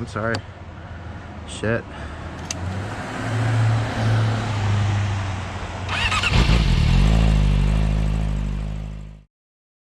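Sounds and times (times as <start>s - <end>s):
motorcycle engine running: 5.9s - 9.2s
deeper engine note rising: 6.4s - 9.2s.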